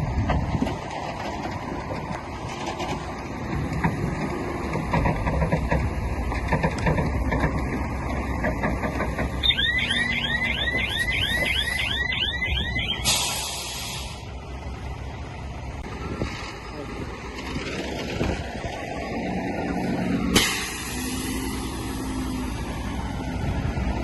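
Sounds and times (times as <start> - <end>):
diesel earthmoving machinery running: 0.0 - 24.0
high chirping alarm: 9.4 - 13.4
short hiss: 13.0 - 14.2.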